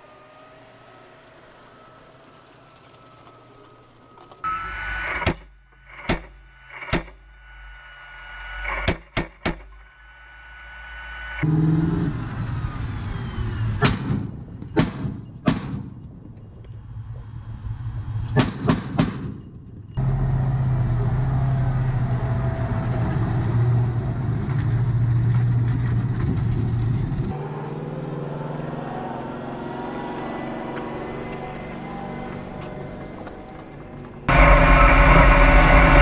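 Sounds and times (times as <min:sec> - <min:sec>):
vehicle engine running: 0:19.3 - 0:36.0.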